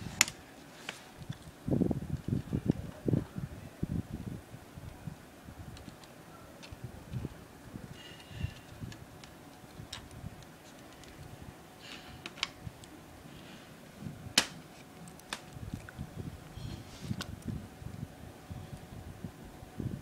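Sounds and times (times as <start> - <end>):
rustling: 0.0 - 1.6
sharp plastic snap: 14.4 - 14.6.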